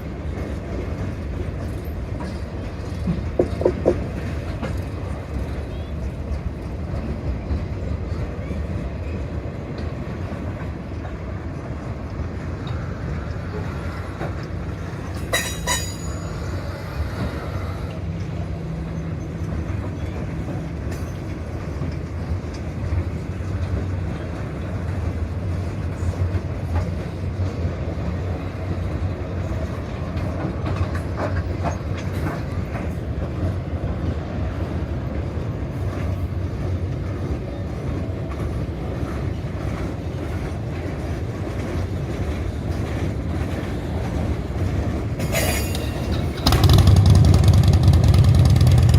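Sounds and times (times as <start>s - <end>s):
freight train cars rumbling past: 0.0s - 48.9s
train wheels clicking: 0.0s - 48.9s
high wheel squeal: 15.3s - 17.9s.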